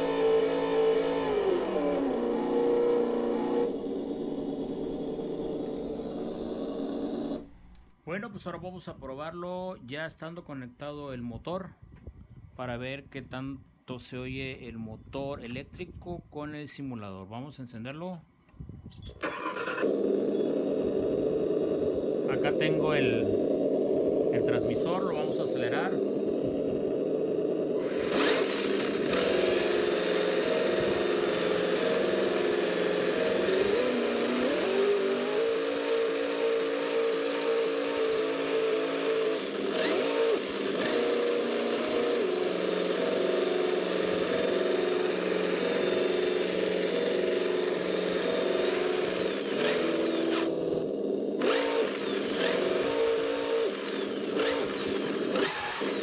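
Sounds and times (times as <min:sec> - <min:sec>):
high electric motor whine: 0:00.0 - 0:07.9, 0:19.2 - 0:56.0.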